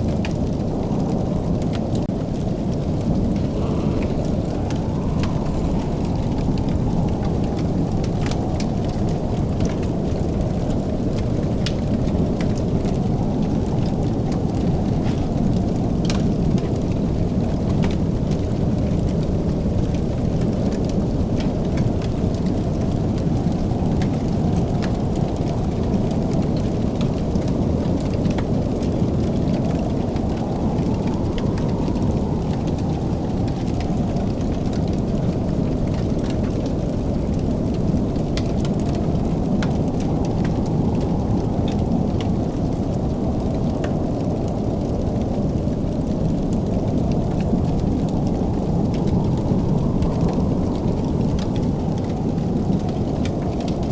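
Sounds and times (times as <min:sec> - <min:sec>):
wood fire crackling: 0:00.0 - 0:53.9
low rumble: 0:00.5 - 0:11.2, 0:12.6 - 0:17.6.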